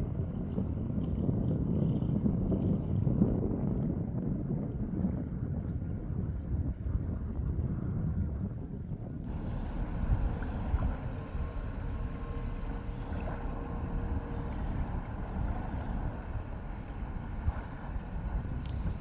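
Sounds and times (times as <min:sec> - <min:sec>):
wind buffeting microphone: 0:00.0 - 0:19.0
boat engine running: 0:09.2 - 0:19.0.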